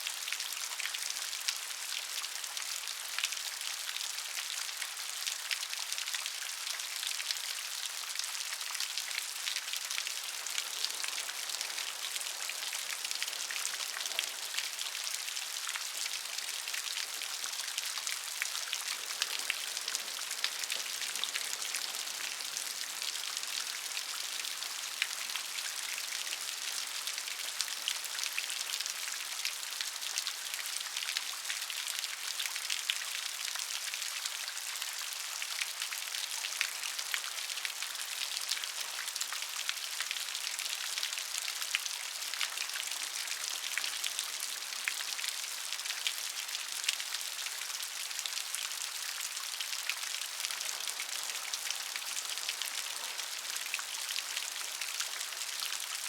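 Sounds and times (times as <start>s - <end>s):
rain pattering on a surface: 0.0s - 56.0s.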